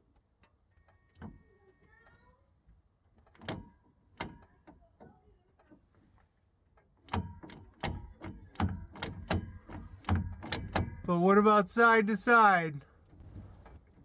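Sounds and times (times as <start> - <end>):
gear-shift linkage clunking: 2.7 - 11.1.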